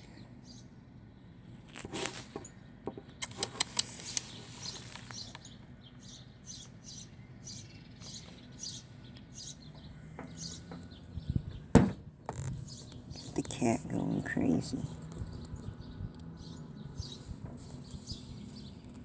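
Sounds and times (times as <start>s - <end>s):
rustle: 1.5s - 2.6s, 3.2s - 6.2s, 14.5s - 19.0s
small bird chirping: 2.4s - 19.0s.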